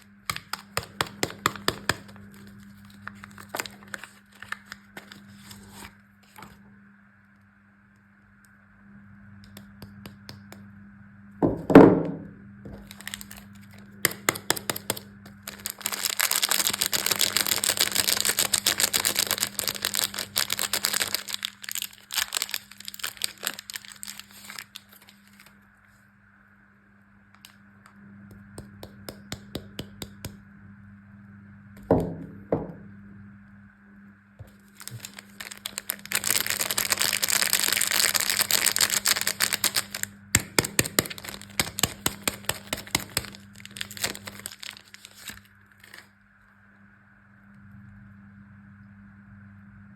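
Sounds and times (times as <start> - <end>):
wrapper crinkling and tearing: 0.0 - 6.4, 12.8 - 25.6, 34.4 - 46.1.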